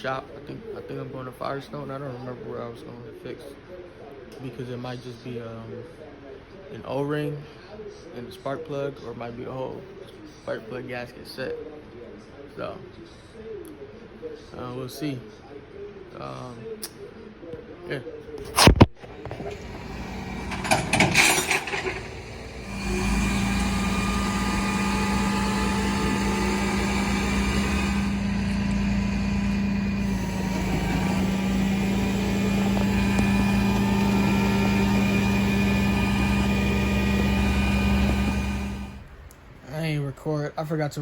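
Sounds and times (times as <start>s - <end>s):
brief clatter: 18.4s - 39.0s
vehicle engine humming: 19.0s - 39.5s.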